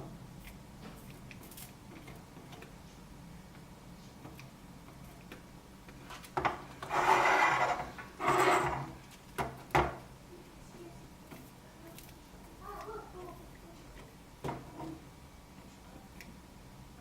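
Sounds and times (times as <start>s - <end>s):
rasping scrapes: 6.8s - 8.9s.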